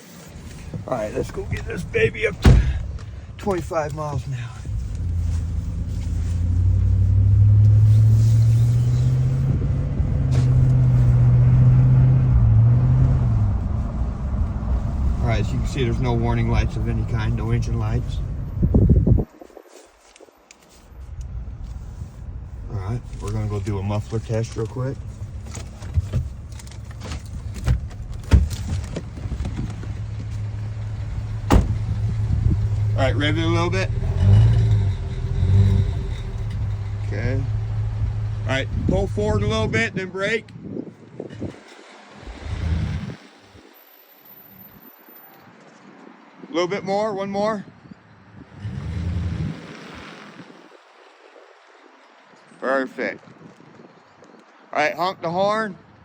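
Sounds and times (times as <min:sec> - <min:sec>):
truck engine idling: 0:00.0 - 0:07.6
pickup truck engine accelerating: 0:00.5 - 0:19.2, 0:22.2 - 0:40.0, 0:41.3 - 0:44.6.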